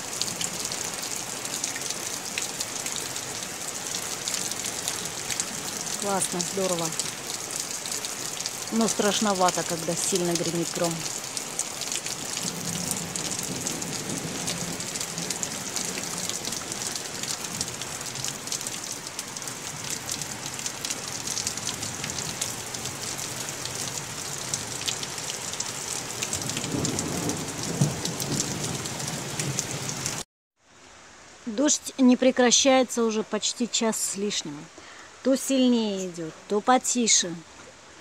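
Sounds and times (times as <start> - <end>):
raindrops pattering on wood: 0.0 - 30.2
heavy rain pouring: 0.0 - 30.3
thunder rumbling: 26.3 - 30.0.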